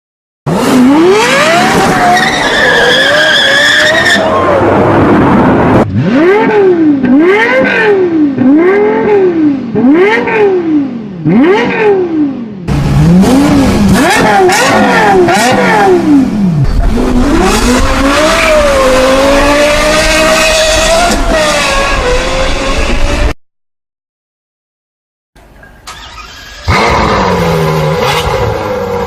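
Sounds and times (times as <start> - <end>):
car engine revving: 0.5 - 4.0, 4.9 - 23.4, 25.9 - 29.0.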